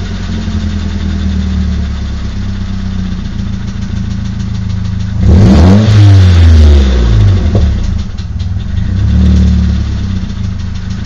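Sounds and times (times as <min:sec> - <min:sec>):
engine idling with tapping: 0:00.0 - 0:11.0
engine revving: 0:04.9 - 0:11.0.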